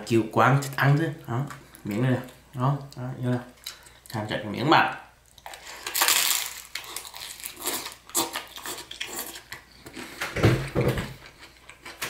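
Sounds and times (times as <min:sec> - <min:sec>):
chewing crisp noodles: 0:05.3 - 0:10.1.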